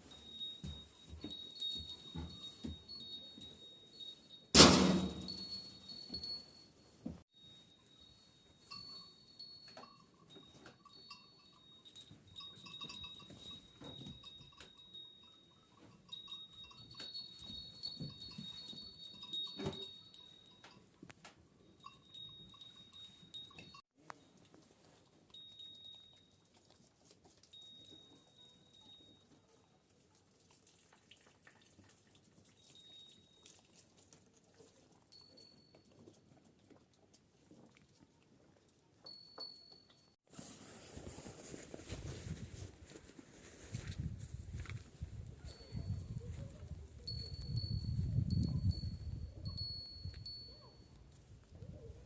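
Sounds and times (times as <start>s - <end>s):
sheep bells clinking: 0.0s - 29.7s, 32.4s - 33.8s, 34.9s - 36.5s, 39.0s - 40.2s, 44.5s - 51.9s.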